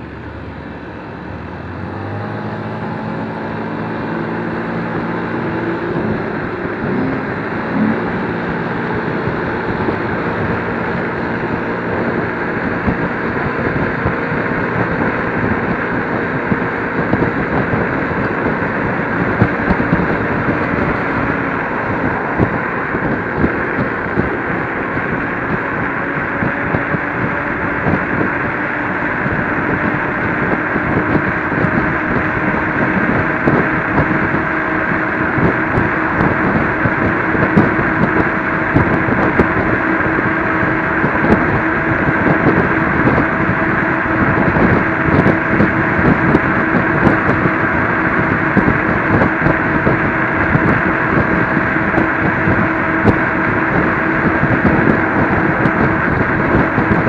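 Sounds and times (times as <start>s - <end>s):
electric motor whine: 0.0s - 57.0s
road noise: 0.0s - 57.0s
wind rushing over microphone: 0.0s - 57.0s.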